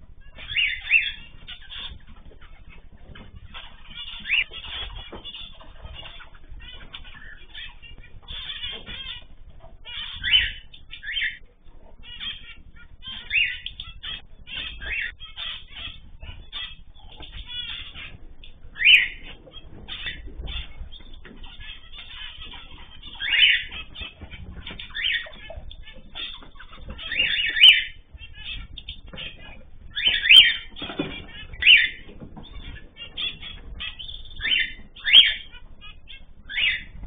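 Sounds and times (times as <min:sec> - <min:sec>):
cage birds chirping: 0:00.0 - 0:37.0.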